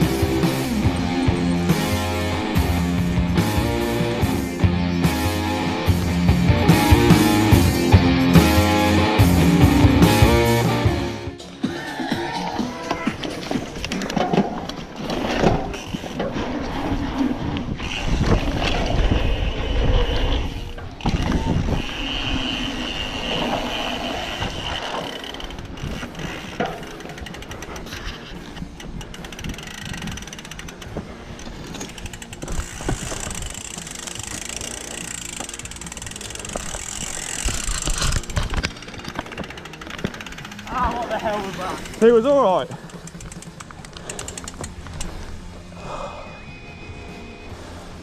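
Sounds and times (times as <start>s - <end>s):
bike tyres rolling on dirt: 0.0s - 10.5s, 12.9s - 46.2s
freewheel ratcheting: 20.8s - 45.2s.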